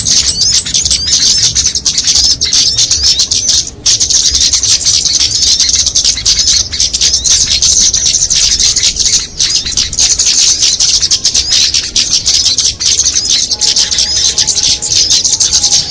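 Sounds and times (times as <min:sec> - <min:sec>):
small songbirds chirping: 0:00.0 - 0:15.9.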